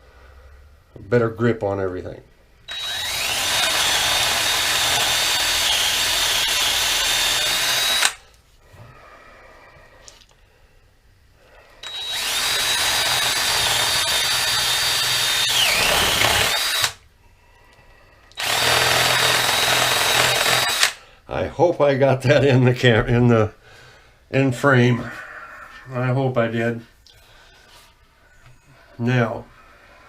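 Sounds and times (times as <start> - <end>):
electric drill boring through wood: 2.7 - 8.2, 11.8 - 17.0, 18.4 - 21.0.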